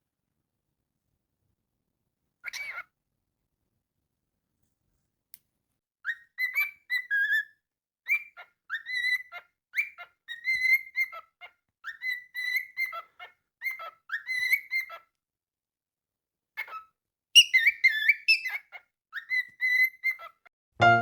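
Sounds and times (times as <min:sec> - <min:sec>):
cockatiel whistling a tune: 0:08.1 - 0:11.2, 0:13.7 - 0:15.0, 0:17.4 - 0:20.3.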